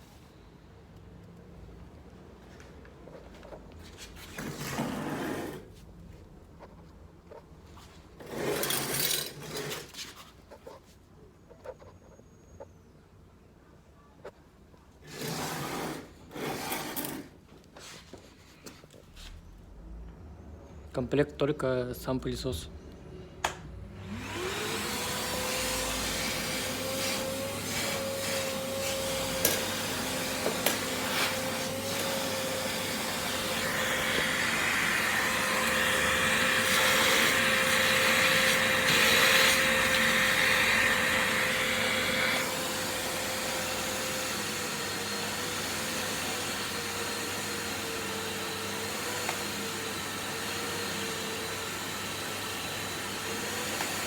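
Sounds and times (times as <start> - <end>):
vacuum cleaner motor running: 23.8 - 54.0.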